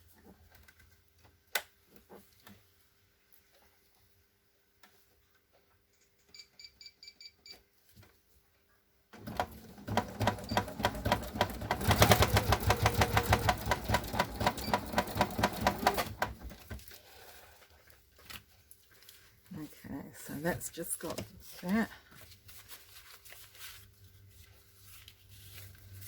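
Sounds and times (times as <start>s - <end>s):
sewing machine stitching: 9.2s - 16.8s.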